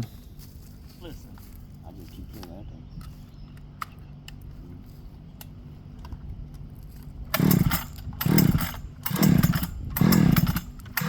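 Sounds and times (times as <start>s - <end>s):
chainsaw starter cord pulls: 7.3s - 11.0s
engine cranking: 7.3s - 11.0s.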